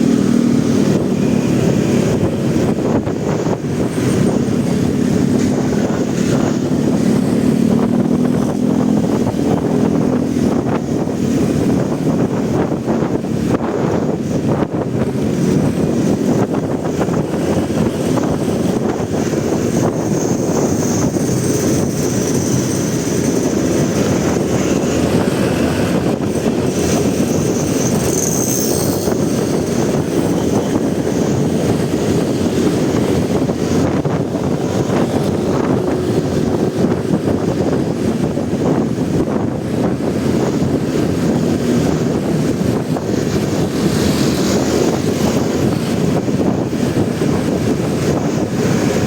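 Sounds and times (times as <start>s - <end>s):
motorcycle engine: 0.0s - 49.0s
surrounding traffic: 0.0s - 49.0s
wind rush on microphone: 0.0s - 49.0s
thin high squeals: 27.2s - 29.9s.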